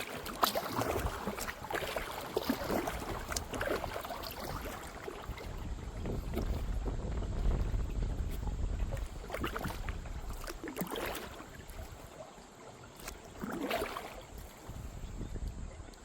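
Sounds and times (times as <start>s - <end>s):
paddle splashing in water: 0.0s - 16.0s
wind buffeting microphone: 0.7s - 10.6s, 14.2s - 16.0s.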